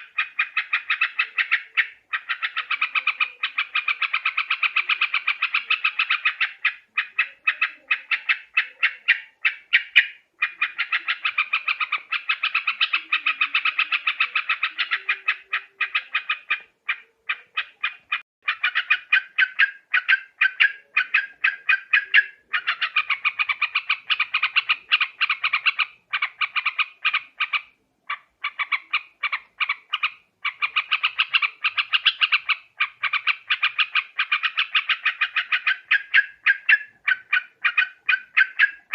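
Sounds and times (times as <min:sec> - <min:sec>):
bird chattering calls: 0:00.0 - 0:38.9.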